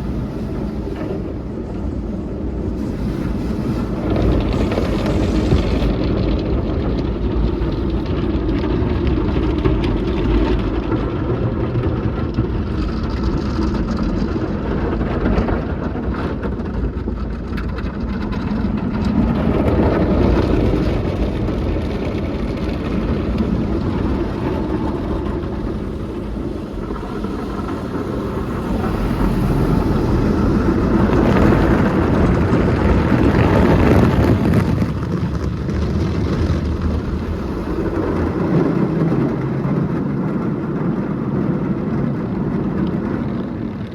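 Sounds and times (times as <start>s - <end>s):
car wash machinery: 0.0s - 43.9s.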